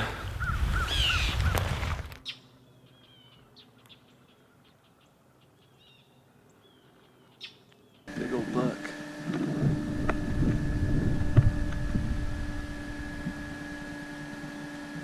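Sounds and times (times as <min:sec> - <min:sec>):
short repeated bird calls: 0:00.2 - 0:08.1
low rumble: 0:09.3 - 0:13.8.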